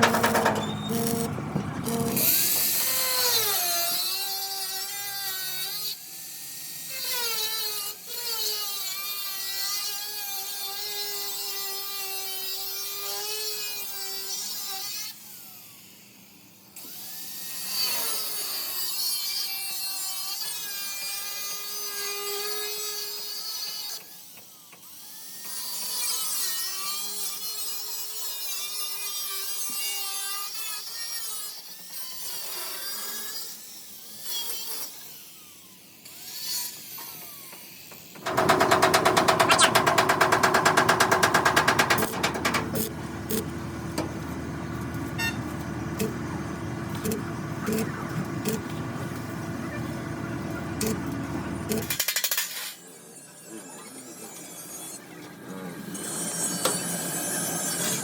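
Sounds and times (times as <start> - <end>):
loud rapid-fire rattle: 0.0 - 3.0, 38.2 - 45.3
power tool whining on metal: 0.0 - 6.0, 34.2 - 52.0.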